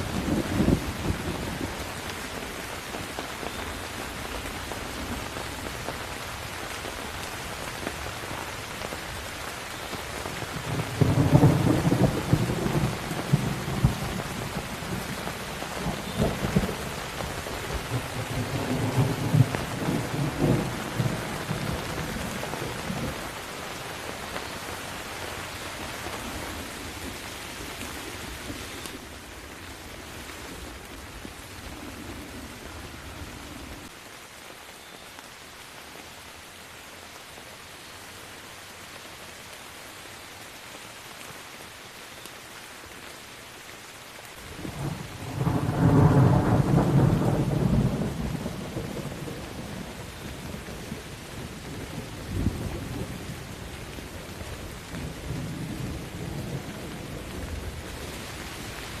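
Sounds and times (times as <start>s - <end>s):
rolling thunder rumble: 0.0s - 1.8s, 10.5s - 23.3s, 44.6s - 53.6s
steady rain falling: 0.0s - 59.0s.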